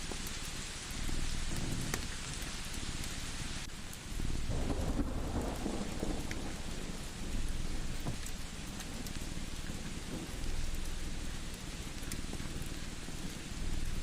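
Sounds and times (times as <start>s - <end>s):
rain hissing: 0.0s - 14.0s
wood fire crackles: 0.0s - 14.0s
thunder rolling: 4.4s - 8.2s.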